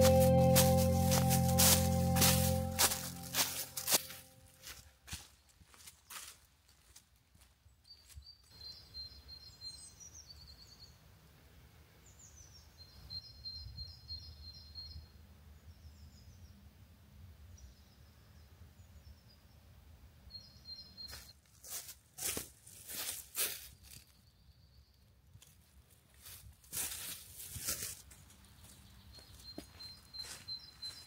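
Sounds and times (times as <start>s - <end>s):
sharp footsteps: 0.0s - 6.3s
songbirds chirping: 27.9s - 31.0s.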